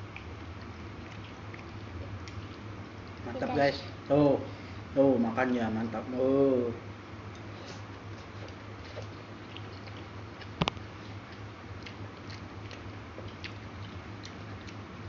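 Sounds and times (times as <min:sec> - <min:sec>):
man chewing food: 0:00.0 - 0:04.1, 0:07.2 - 0:15.0
steady low hum: 0:00.0 - 0:15.0.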